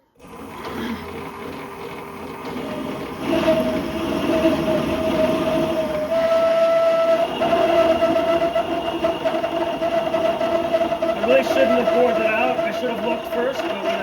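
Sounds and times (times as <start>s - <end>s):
drill bit squealing in metal: 3.2s - 14.0s.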